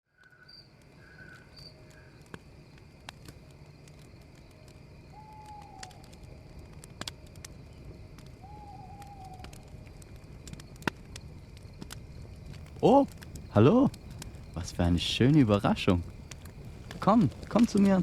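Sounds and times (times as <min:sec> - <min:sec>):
night ambience: 0:00.2 - 0:18.0
campfire crackling and popping: 0:00.7 - 0:18.0
bird calling: 0:12.7 - 0:18.0.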